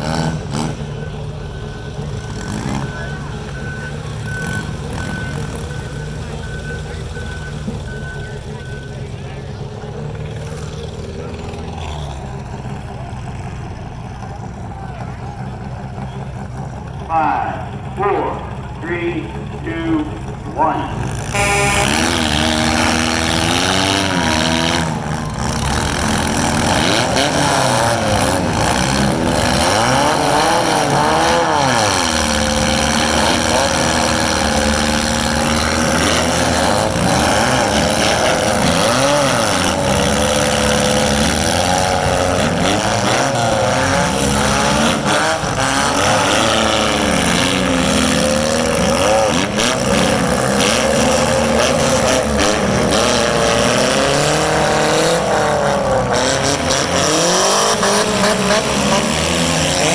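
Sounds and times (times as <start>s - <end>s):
car engines revving: 0.0s - 59.9s
cars crashing: 0.0s - 59.9s.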